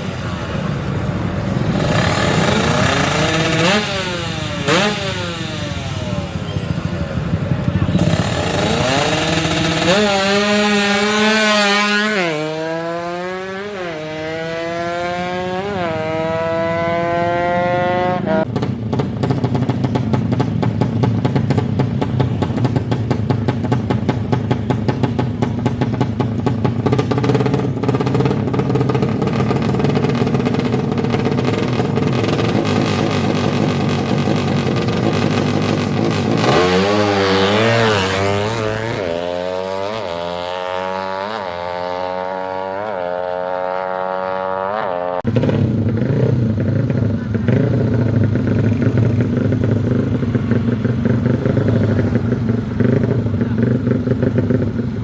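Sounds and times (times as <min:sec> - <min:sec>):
racing engine revving: 0:01.6 - 0:06.8, 0:07.7 - 0:18.5, 0:26.9 - 0:54.8.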